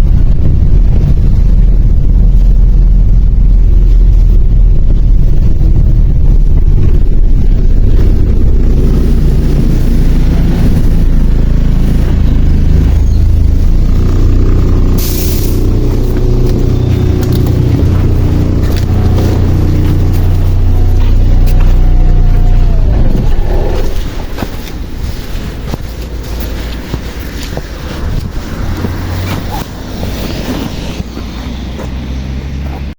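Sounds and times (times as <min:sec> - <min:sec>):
bus engine running: 0:00.0 - 0:32.9
hissing air burst: 0:14.8 - 0:16.4.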